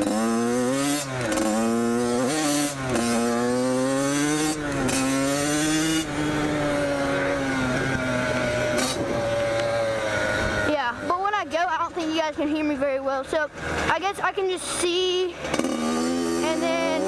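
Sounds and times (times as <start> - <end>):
dirt bike engine accelerating: 0.0 - 17.0.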